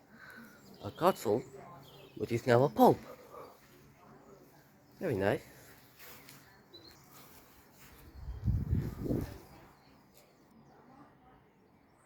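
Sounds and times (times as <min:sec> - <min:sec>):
faint outdoor background: 0:00.0 - 0:12.0
low rumble on microphone: 0:08.2 - 0:09.6.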